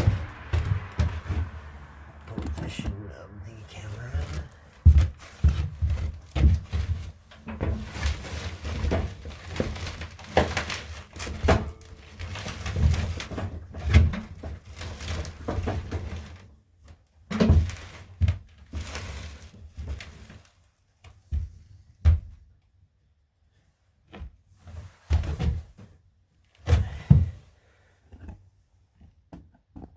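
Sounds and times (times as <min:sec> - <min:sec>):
tools clunking and rattling: 0:00.0 - 0:01.8.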